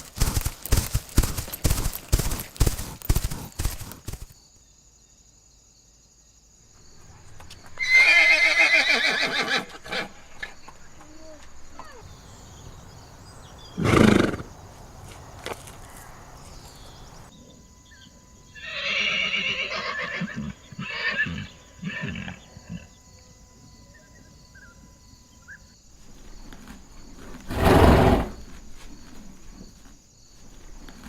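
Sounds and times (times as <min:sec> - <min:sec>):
horse neighing: 0:07.8 - 0:10.2, 0:18.6 - 0:22.8, 0:27.5 - 0:28.4.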